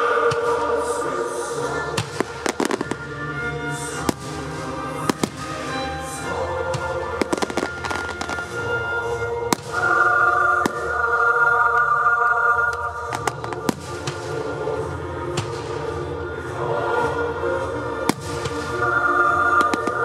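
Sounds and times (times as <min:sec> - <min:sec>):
music: 0:00.0 - 0:20.0
fireworks bangs: 0:02.0 - 0:03.0, 0:04.1 - 0:05.7, 0:06.8 - 0:08.6, 0:13.0 - 0:14.4.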